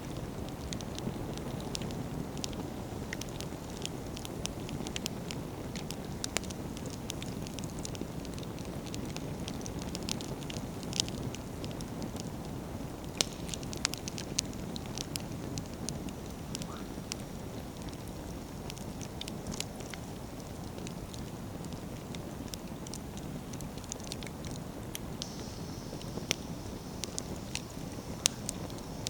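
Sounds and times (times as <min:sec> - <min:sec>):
campfire crackling and popping: 0:00.0 - 0:29.0.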